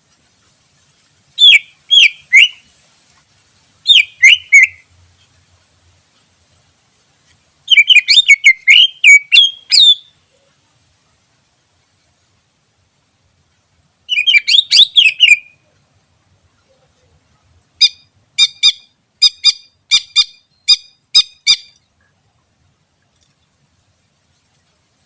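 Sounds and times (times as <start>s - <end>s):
bird chattering call: 1.4s - 2.6s, 3.9s - 4.8s.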